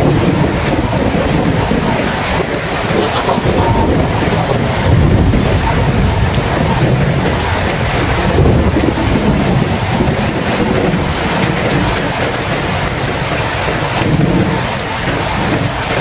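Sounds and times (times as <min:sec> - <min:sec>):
low rumbling thunder: 0:00.0 - 0:15.9
heavy rain: 0:00.0 - 0:16.0.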